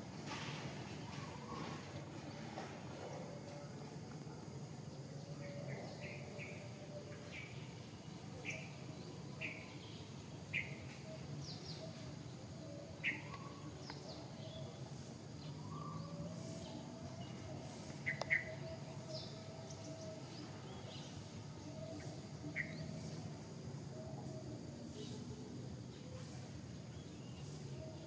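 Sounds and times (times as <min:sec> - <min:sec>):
small birds chirping: 0:04.8 - 0:23.6.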